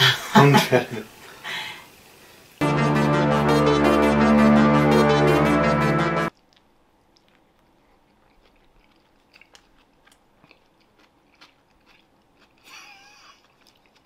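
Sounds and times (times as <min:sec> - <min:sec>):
person chewing food: 0:06.3 - 0:14.0.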